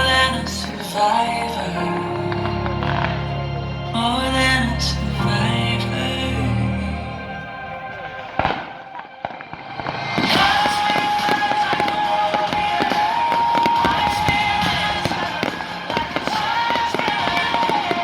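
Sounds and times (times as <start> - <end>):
music with long held notes: 0.0 - 18.0
fireworks bangs: 8.0 - 18.0
fireworks crackling and popping: 8.4 - 18.0.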